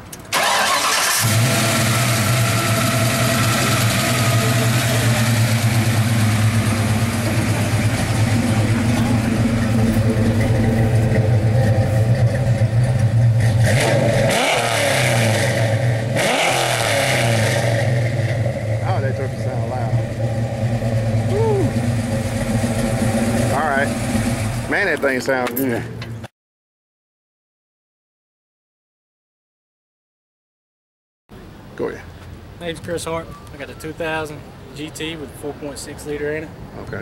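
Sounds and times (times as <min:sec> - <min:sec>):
car engine idling and revving: 0:00.1 - 0:26.3.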